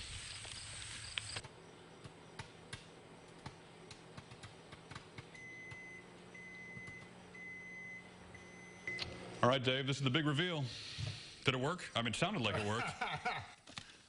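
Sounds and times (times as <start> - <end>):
microwave oven hum: 0.1 - 10.5
popcorn popping: 1.4 - 5.9
microwave beeps: 5.3 - 9.4.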